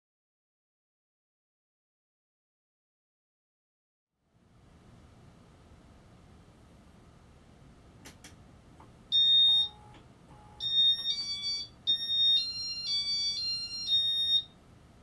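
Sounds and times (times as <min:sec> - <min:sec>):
fan control beeps: 0:09.1 - 0:14.6.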